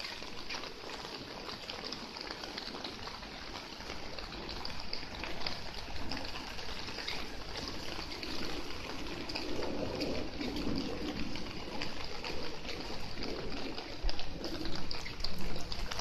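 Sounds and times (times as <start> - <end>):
rain falling: 0.0 - 16.0
water trickling and splashing: 0.0 - 16.0.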